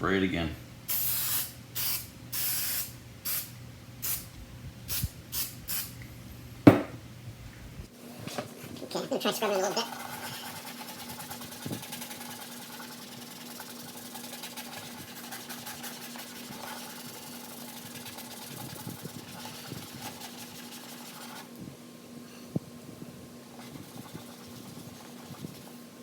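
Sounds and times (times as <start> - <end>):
steady low hum: 0.0 - 26.0
scrubbing plastic cover by hand: 9.4 - 21.5, 23.6 - 25.7.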